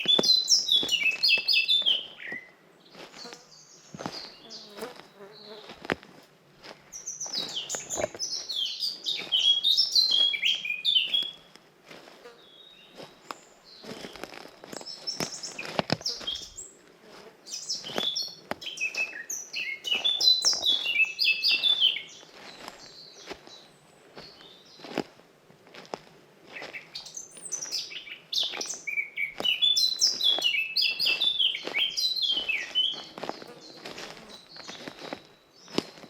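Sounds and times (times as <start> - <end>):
songbird singing: 0.0 - 5.9, 6.8 - 11.5, 12.4 - 16.8, 17.4 - 25.0, 26.5 - 36.0
faint bird chirps: 17.5 - 24.9, 26.5 - 36.0.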